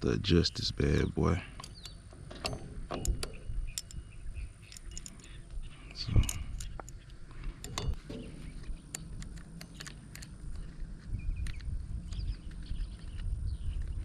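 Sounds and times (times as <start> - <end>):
saw chain clicks and taps: 4.6 - 5.3, 7.6 - 8.3, 8.9 - 10.3.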